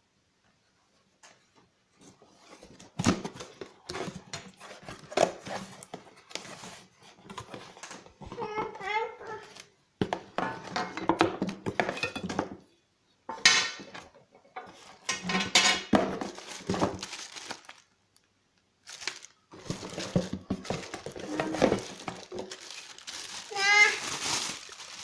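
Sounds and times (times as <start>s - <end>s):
plastic and cardboard crinkling: 2.0s - 12.6s, 13.5s - 25.0s.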